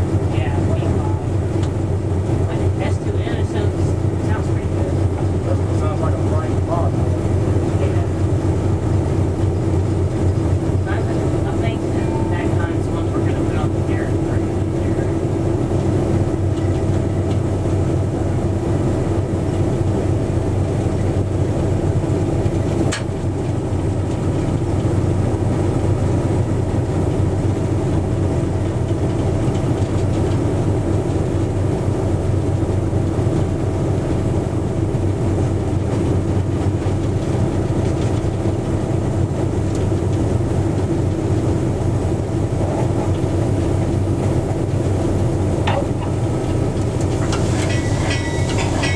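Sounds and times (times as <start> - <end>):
diesel train engine drone: 0.0 - 48.9
rail and wheel noise: 0.0 - 48.9
sharp metal clank: 47.3 - 48.9.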